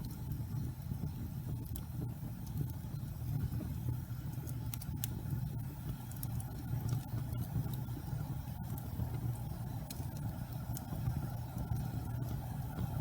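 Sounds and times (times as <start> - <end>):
fire crackles and pops: 0.0 - 13.0
fire low rumble: 0.0 - 13.0.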